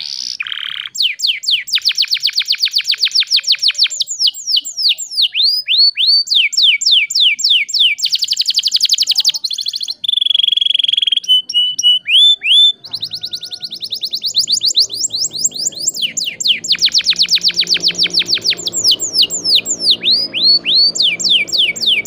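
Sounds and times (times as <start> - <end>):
canary singing trilled song: 0.0 - 22.0.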